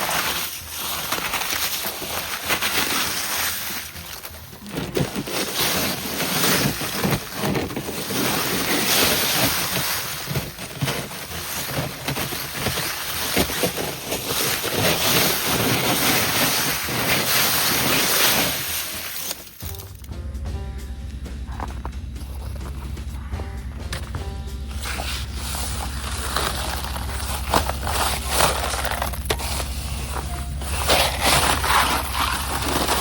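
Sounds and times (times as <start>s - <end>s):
low thumps: 19.6s - 28.2s.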